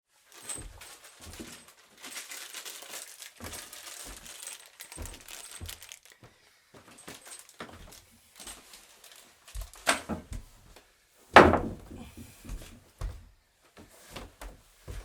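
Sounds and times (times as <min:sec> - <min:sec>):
dull knocks: 0:11.4 - 0:12.0
wooden parts clicking and rattling: 0:11.4 - 0:12.0.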